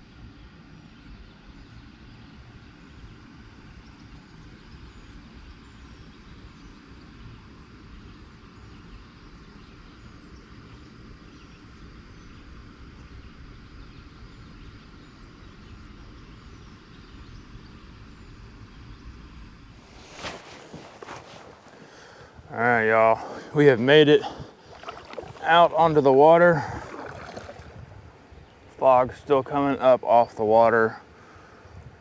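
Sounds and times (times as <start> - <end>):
small birds chirping: 19.8 - 32.0.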